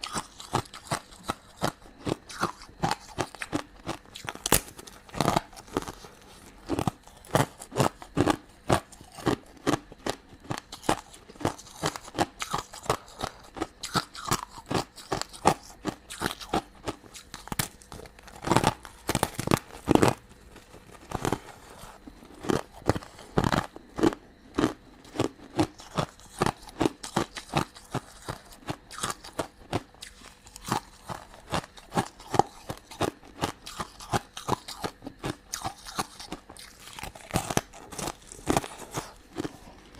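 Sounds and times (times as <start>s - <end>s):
crunching and chewing candy: 0.0s - 39.9s.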